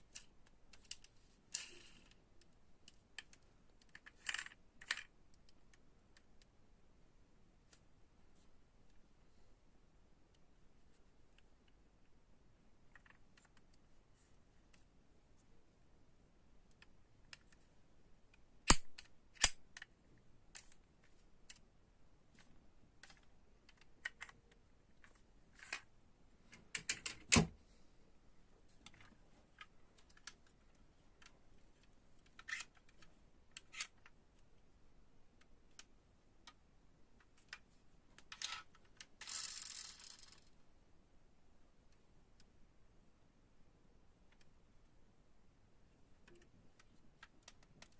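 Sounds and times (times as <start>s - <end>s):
toy cars clicking and tapping: 0.1s - 2.2s, 2.9s - 5.1s, 38.2s - 40.5s.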